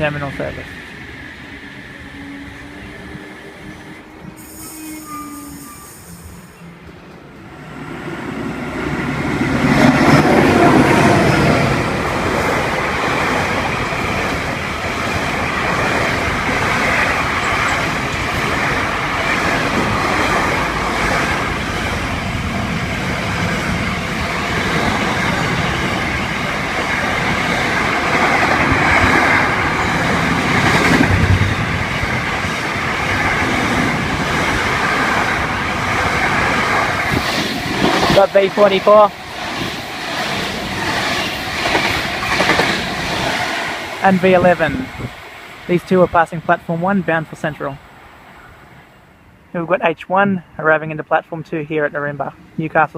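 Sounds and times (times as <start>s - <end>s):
train wheels rumbling on rails: 0.0s - 46.0s.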